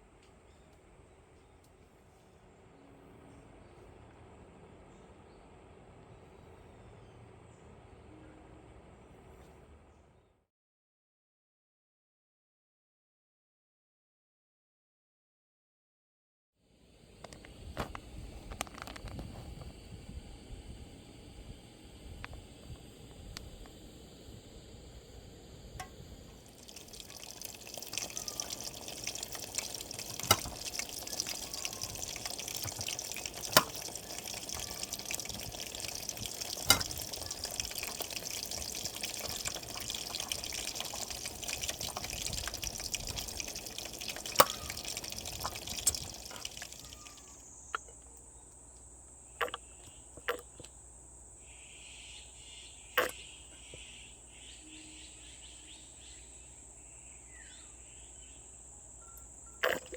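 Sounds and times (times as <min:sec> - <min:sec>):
high insect buzz: 0:24.4 - 0:43.7
water running and splashing: 0:25.8 - 0:47.4.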